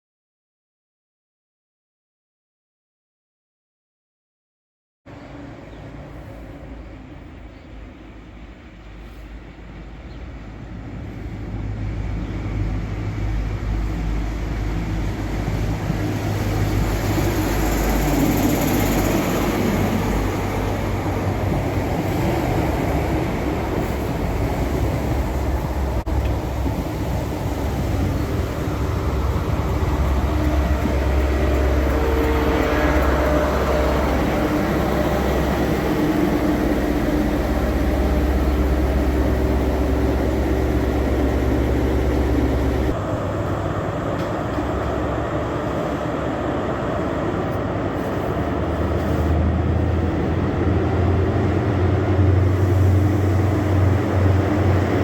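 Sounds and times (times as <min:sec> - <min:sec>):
diesel train engine drone: 0:05.1 - 0:55.0
wheels on rails: 0:14.0 - 0:55.0.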